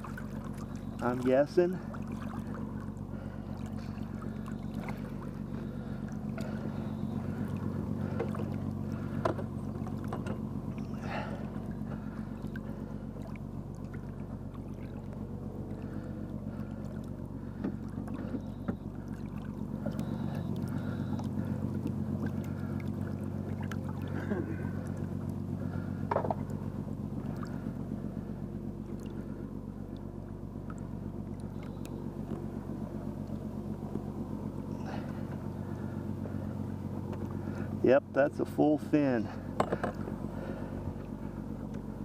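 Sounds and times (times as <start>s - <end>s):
boat motor idling: 0.0s - 42.0s
light knocks against hull: 3.6s - 12.7s, 16.5s - 25.1s, 26.0s - 27.6s, 39.4s - 40.2s.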